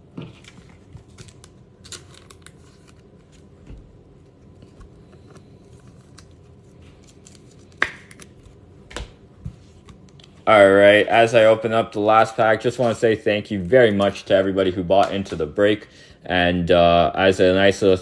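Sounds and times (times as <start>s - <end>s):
trading cards and packaging rustling: 0.2s - 8.6s.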